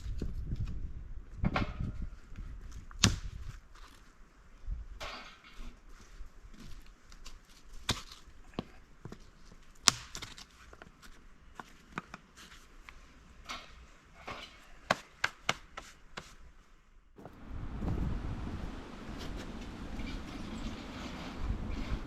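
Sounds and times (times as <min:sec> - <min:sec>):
dry wood knocking and snapping: 0:02.8 - 0:03.9, 0:09.8 - 0:11.1.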